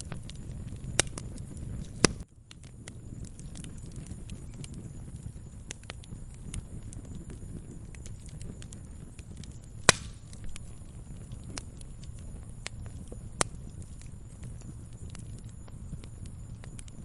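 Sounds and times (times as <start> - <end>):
sharp pop of fire: 0.0 - 7.4, 8.0 - 11.7
wood fire crackling: 0.0 - 17.0.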